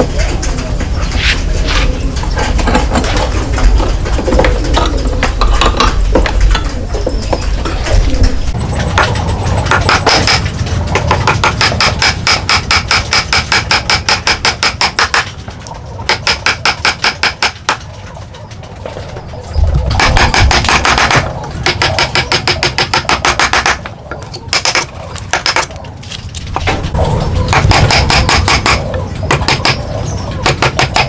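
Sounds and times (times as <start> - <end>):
fast sharp even taps: 8.8 - 18.0, 19.7 - 25.9, 26.5 - 31.0.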